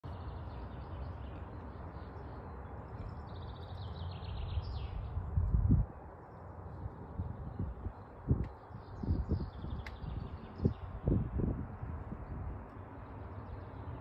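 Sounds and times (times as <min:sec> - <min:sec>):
songbird singing with trill: 0:00.1 - 0:05.3, 0:06.2 - 0:11.4
wind rumbling on microphone: 0:00.1 - 0:14.0.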